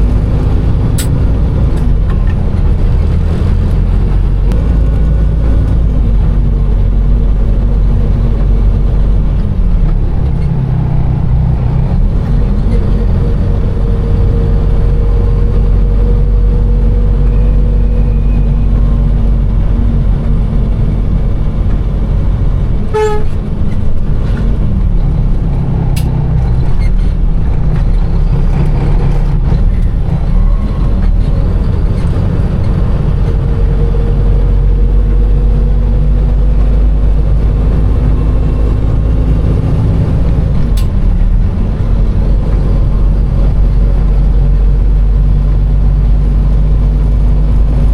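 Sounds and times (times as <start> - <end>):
truck diesel engine running: 0.0 - 47.9
truck horn toot: 22.9 - 23.5.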